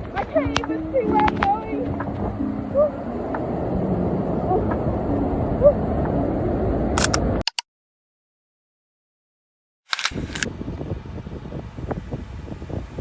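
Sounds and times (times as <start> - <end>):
faint voices: 0.0 - 3.3
outdoor background noise: 0.0 - 7.5, 9.9 - 13.0.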